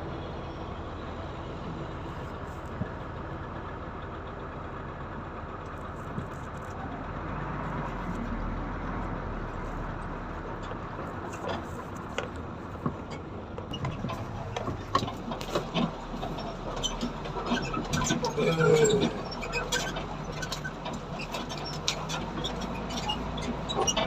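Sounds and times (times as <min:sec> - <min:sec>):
diesel engine running: 0:00.0 - 0:24.0
knocks and rattles: 0:10.5 - 0:24.0.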